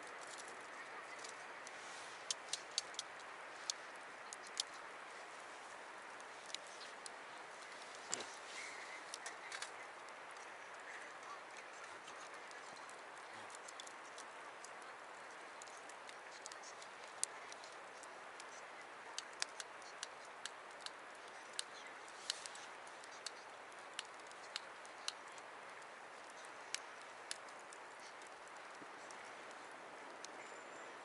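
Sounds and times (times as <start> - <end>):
campfire crackling: 0.0 - 31.0
steady hiss: 0.0 - 31.0
burning wood popping: 1.2 - 5.5, 11.8 - 30.3.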